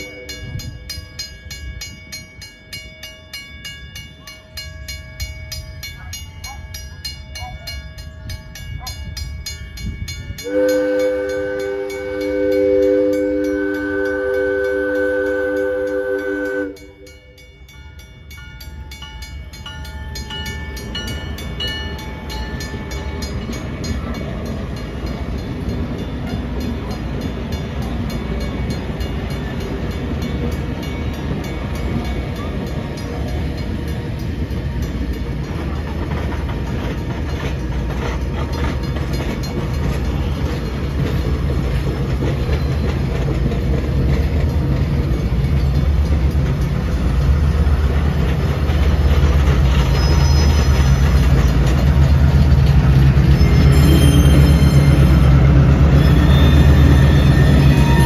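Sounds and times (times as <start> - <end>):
train horn: 0.0 - 0.7, 10.4 - 17.4, 53.4 - 58.0
train engine rumble and wheels: 0.0 - 58.0.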